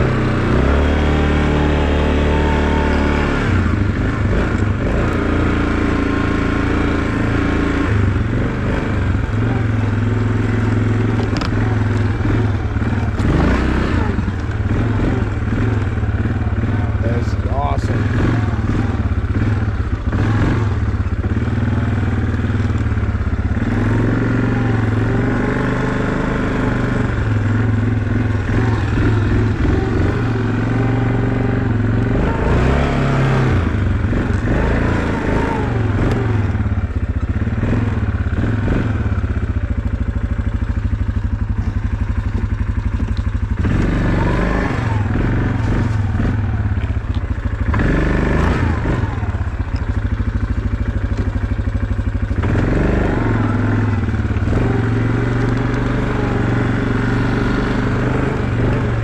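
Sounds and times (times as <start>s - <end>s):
small vehicle engine running: 0.0s - 59.0s.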